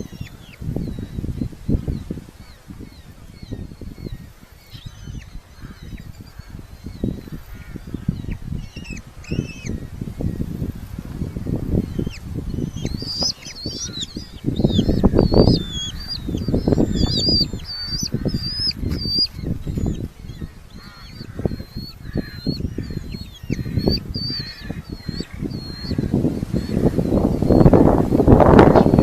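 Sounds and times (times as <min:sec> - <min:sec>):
falcon shrill calls: 0:11.8 - 0:27.7.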